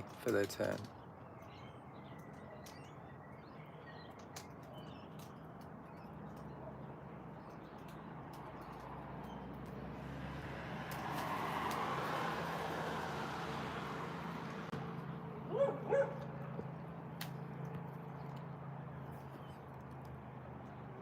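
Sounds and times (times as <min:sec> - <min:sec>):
faint bird chirps: 0:01.1 - 0:08.1.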